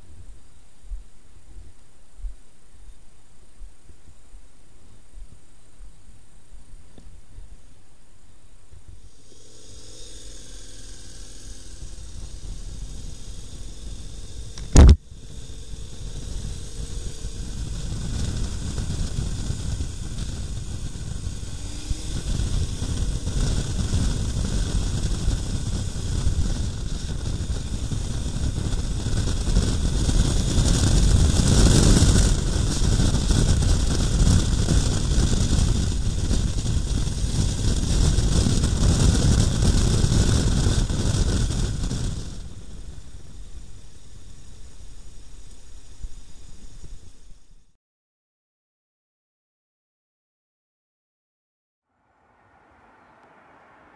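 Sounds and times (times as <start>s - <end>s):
motorcycle engine rumble: 8.5s - 45.3s
wind noise: 10.2s - 44.8s.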